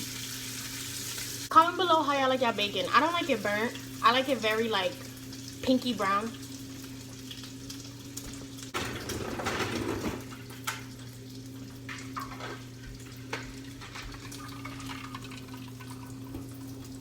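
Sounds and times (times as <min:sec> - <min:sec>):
tap running: 0:01.1 - 0:17.0
steady hum: 0:01.5 - 0:08.8.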